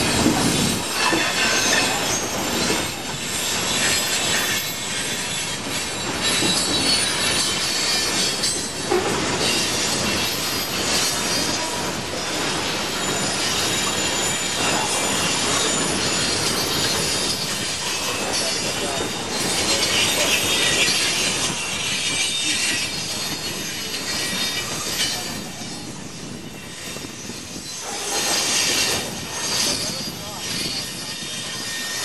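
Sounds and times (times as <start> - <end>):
train cars rumbling on rails: 0.0 - 32.0
train wheels squealing: 0.0 - 32.0.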